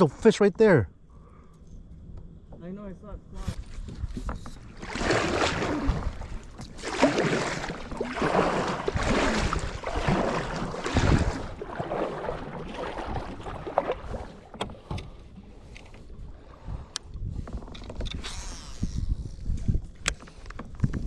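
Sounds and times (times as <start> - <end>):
paddle splashing water: 3.7 - 16.2.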